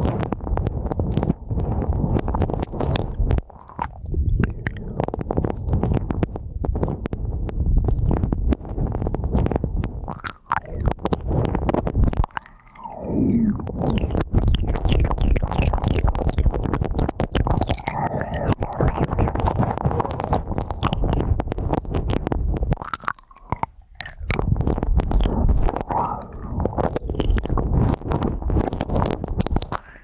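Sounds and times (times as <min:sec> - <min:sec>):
ear pick scratching close on microphone: 0:00.0 - 0:30.0
low rumble of rubbing: 0:10.8 - 0:22.8.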